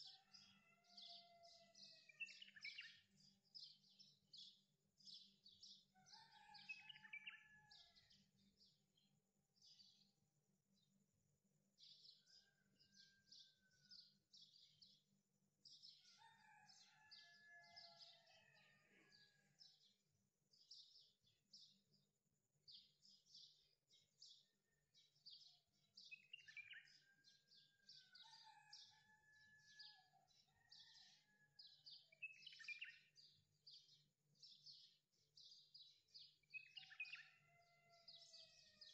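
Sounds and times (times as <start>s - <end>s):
birds chirping and twittering: 0.0s - 10.9s, 11.7s - 38.9s
bird warbling song: 26.1s - 26.9s.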